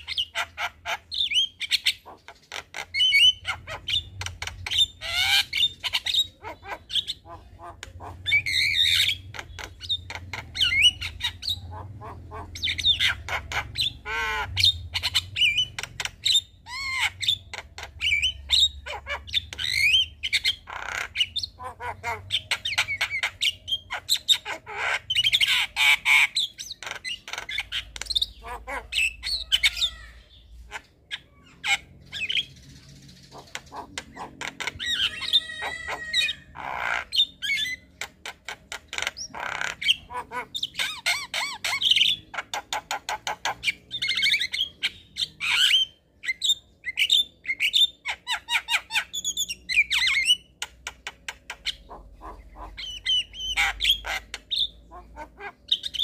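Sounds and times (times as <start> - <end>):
myna bird singing squawks and whistles: 0.0 - 56.0.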